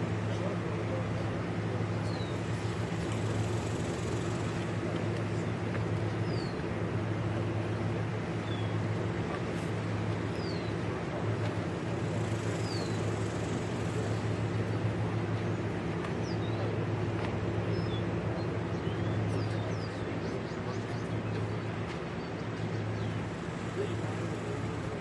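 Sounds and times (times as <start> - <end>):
engine droning: 0.0 - 25.0.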